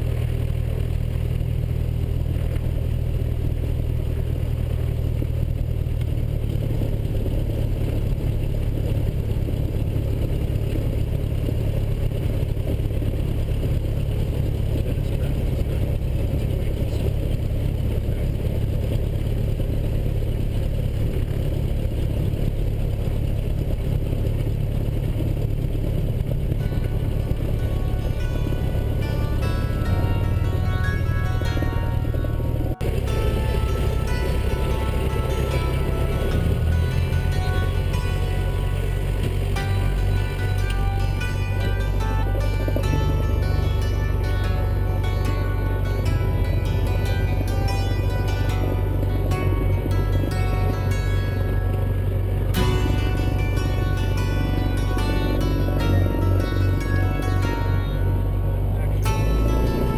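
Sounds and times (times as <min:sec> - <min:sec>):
aircraft engine and propeller: 0:00.0 - 0:44.9, 0:51.4 - 0:53.8.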